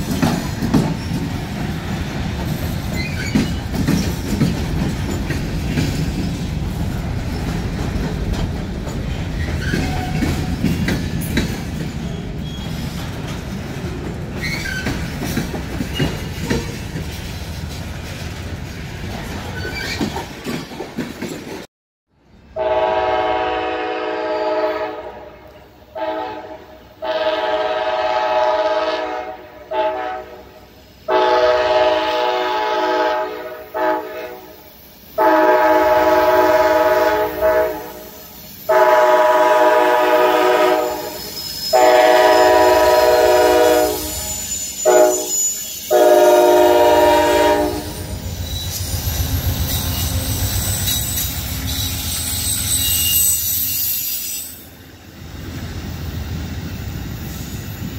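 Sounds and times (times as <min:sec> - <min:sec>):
train rumble and wheel clatter: 0:00.0 - 0:57.9
locomotive air horn blasts: 0:22.6 - 0:34.5, 0:35.2 - 0:48.2.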